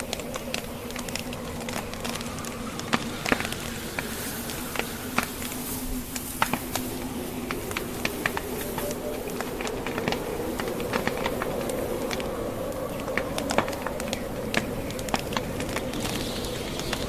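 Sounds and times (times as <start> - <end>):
burning logs crackling and popping: 0.0 - 17.0
steady rushing noise: 0.0 - 17.0.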